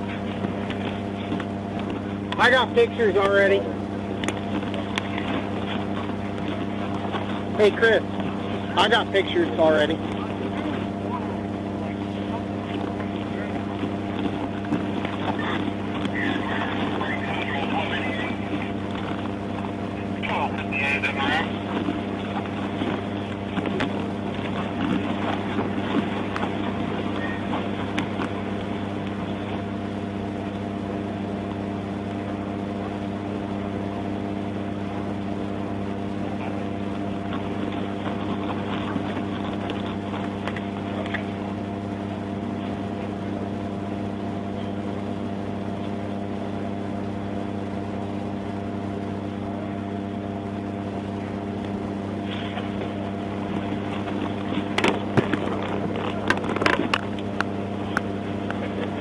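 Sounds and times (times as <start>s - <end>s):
faint clicks: 4.2s - 7.4s, 37.2s - 41.3s.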